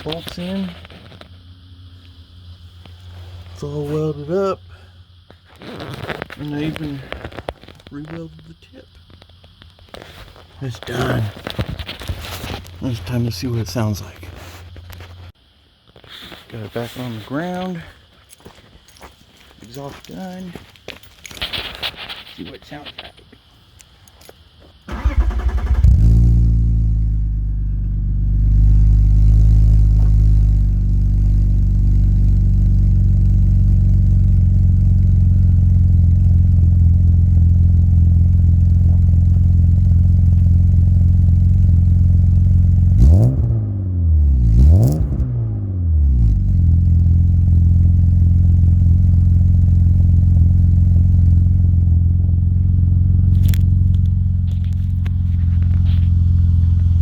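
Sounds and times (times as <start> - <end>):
car engine idling: 0.0 - 15.4, 24.9 - 43.2, 45.8 - 57.0
engine throttle blips: 0.0 - 15.4, 24.9 - 57.0
starter motor cranking: 24.9 - 26.2.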